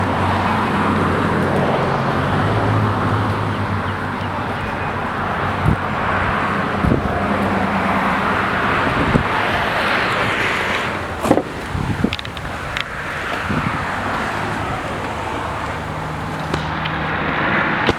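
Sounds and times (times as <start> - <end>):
car engine hum: 0.0 - 17.9
wind and tyre noise: 0.0 - 17.9.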